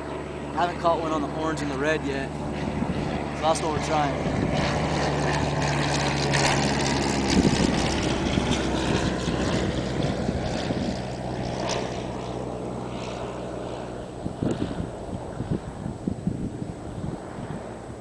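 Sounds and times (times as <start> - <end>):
distant engine drone: 0.0 - 18.0.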